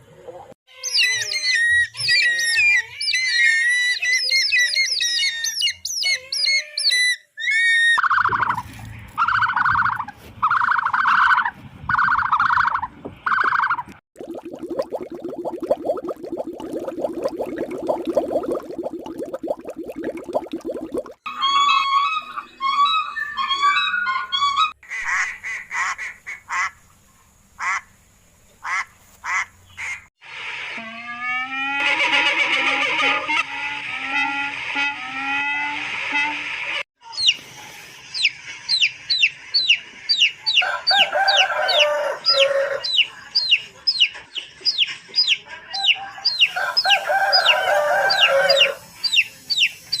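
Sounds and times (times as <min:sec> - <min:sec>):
waterfowl pitched calls: 0:06.4 - 0:13.9
chicks peeping: 0:38.1 - 0:40.6, 0:42.8 - 0:46.6
chicken calling: 0:45.2 - 0:49.7.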